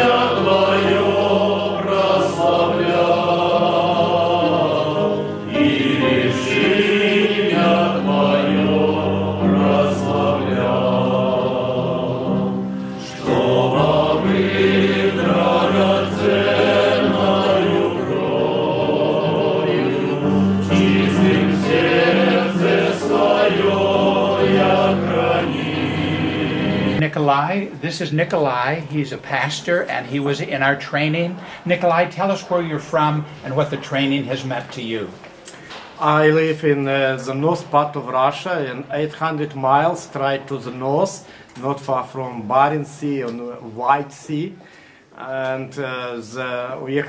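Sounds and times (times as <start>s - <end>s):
choir singing held chords: 0.0s - 27.0s.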